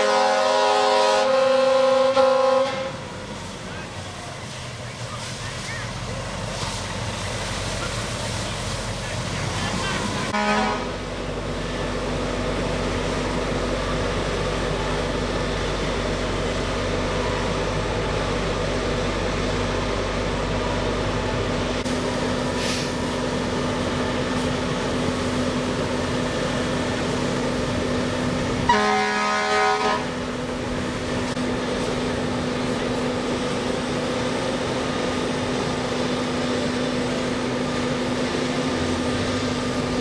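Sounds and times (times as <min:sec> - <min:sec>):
air horn blast: 0:00.0 - 0:03.0, 0:10.3 - 0:11.0, 0:28.6 - 0:30.2
fire truck engines droning: 0:00.0 - 0:40.0.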